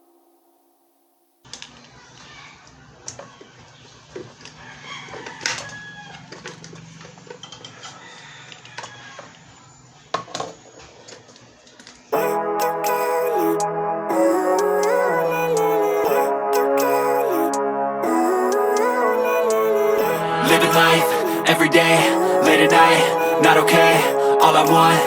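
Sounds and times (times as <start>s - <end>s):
loud music: 12.2s - 25.0s.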